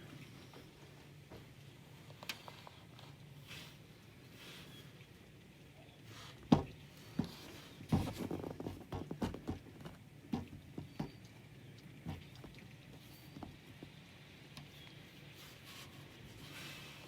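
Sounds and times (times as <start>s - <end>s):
soft thumps and knocks: 6.4s - 11.3s, 12.0s - 14.0s.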